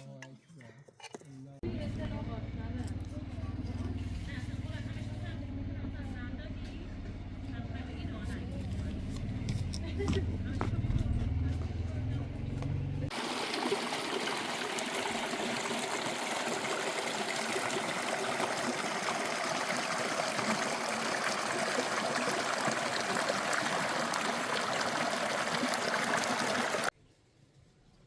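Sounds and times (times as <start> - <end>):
running water flowing: 13.1 - 26.9.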